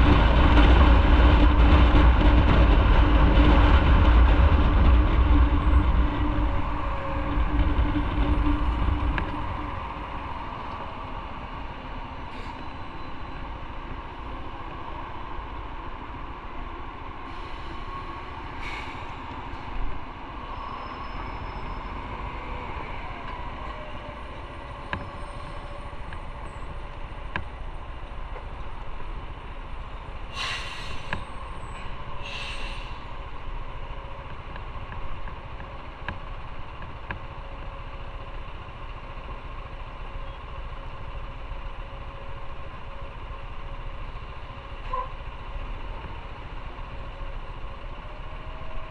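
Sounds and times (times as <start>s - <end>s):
motorcycle engine and road rumble: 0.0s - 48.9s
brief sharp hisses: 30.3s - 31.2s, 32.2s - 33.1s.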